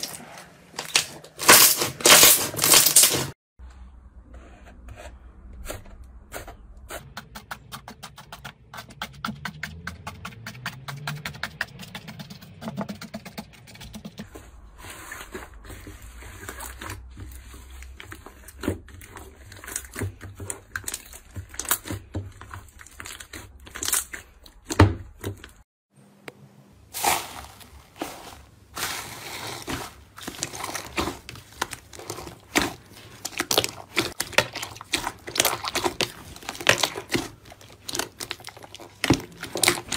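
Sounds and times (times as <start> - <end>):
slime squished by hand: 27.0 - 39.9.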